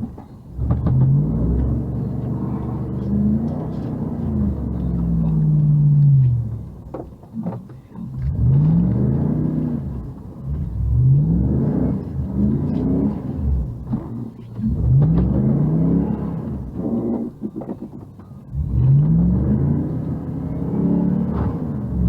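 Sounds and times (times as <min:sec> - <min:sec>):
car engine revving: 0:00.0 - 0:07.1, 0:08.1 - 0:22.0.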